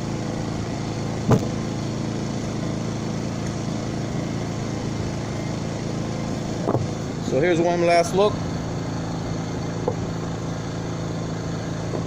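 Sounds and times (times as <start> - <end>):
engine idling: 0.0 - 12.0
sharp knock: 1.3 - 1.6.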